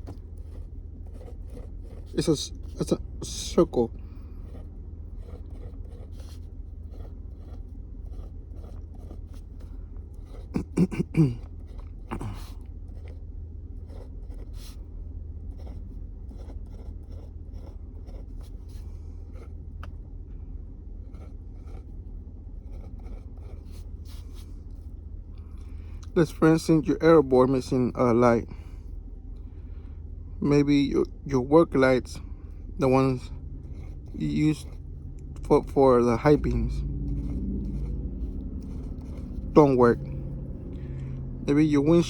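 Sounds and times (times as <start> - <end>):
pen scratching and tapping on paper: 0.0 - 2.8, 4.4 - 13.2, 13.9 - 14.8, 15.6 - 20.0, 37.1 - 39.5
steady low hum: 0.0 - 42.0.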